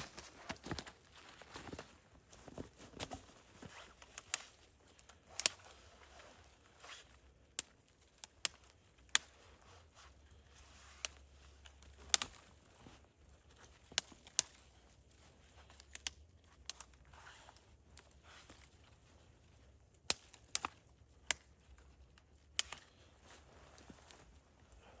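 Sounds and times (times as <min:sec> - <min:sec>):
sharp snaps and clicks: 0:04.0 - 0:05.8, 0:07.1 - 0:09.4, 0:11.0 - 0:12.7, 0:15.7 - 0:18.8, 0:19.9 - 0:23.0.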